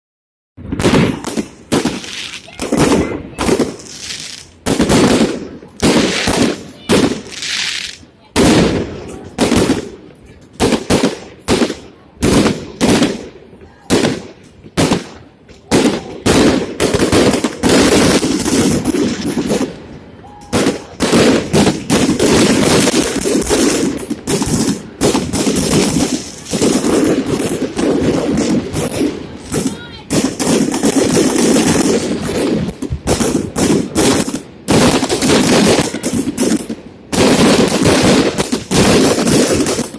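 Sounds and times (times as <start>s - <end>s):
fireworks shells bursting: 0.7s - 8.8s, 20.5s - 39.9s
crowd voices: 2.0s - 4.6s, 5.2s - 16.8s, 18.1s - 21.9s, 23.4s - 33.0s.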